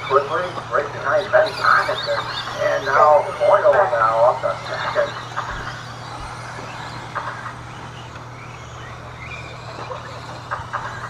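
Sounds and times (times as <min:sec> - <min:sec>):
low hum: 0:00.0 - 0:11.0
whining toy truck motors: 0:00.0 - 0:11.0.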